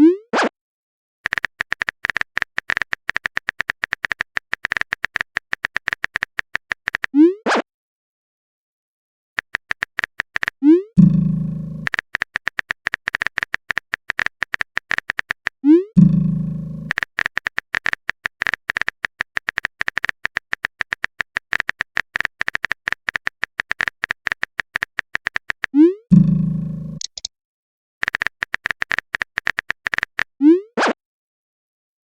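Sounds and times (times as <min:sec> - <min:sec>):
keyboard typing clicks: 0:01.2 - 0:07.2, 0:09.4 - 0:10.6, 0:11.8 - 0:15.6, 0:16.9 - 0:25.8, 0:27.0 - 0:27.3, 0:28.0 - 0:30.4.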